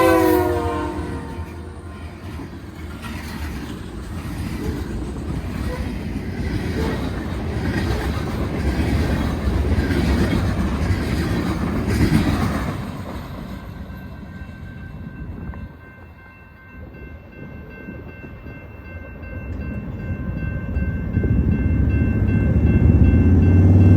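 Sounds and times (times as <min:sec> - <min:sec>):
train wheels clattering over rails: 0:02.1 - 0:14.3.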